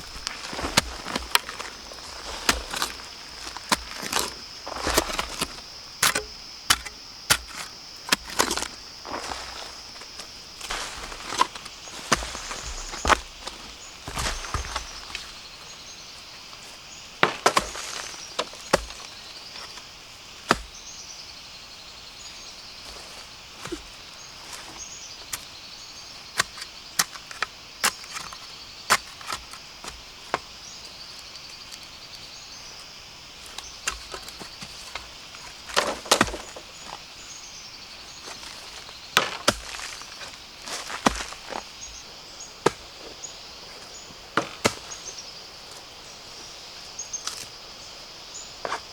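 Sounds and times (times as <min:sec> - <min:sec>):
high-pitched insect chorus: 0:00.0 - 0:48.9
bamboo chopping and snapping: 0:00.1 - 0:08.8, 0:17.2 - 0:19.8, 0:20.5 - 0:20.8, 0:26.3 - 0:30.5, 0:33.5 - 0:36.9, 0:38.4 - 0:41.7, 0:42.6 - 0:43.0, 0:44.4 - 0:45.1.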